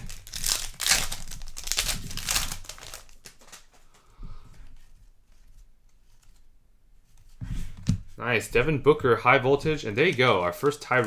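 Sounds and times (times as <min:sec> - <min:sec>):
wrapper crinkling: 0:00.0 - 0:04.0
cards being handled: 0:00.0 - 0:08.1, 0:09.7 - 0:11.0.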